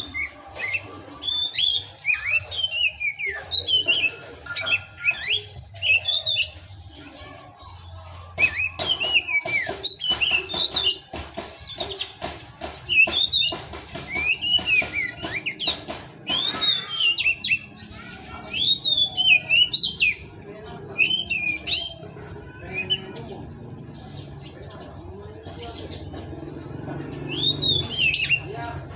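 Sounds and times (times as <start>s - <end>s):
bird singing whistles and chirps: 0.0s - 6.7s, 8.4s - 11.1s, 12.8s - 24.9s, 27.1s - 28.5s.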